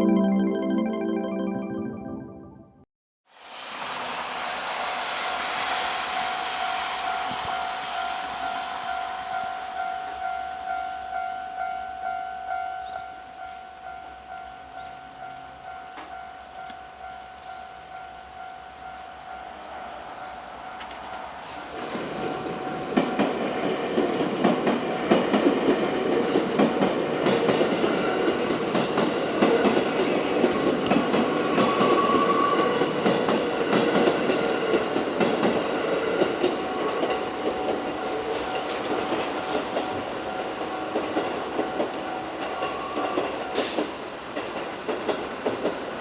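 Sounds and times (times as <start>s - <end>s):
train wheels clacking over rail joints: 20.7s - 46.0s.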